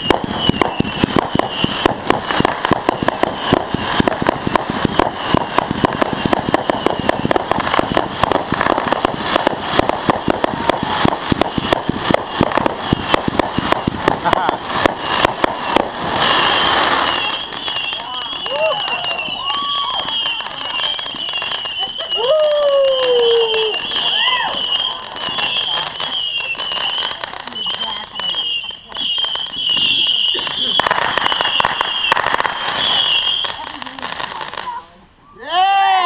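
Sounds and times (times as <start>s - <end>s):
fireworks bangs and pops: 0.0s - 35.0s
fireworks crackling: 0.0s - 35.1s.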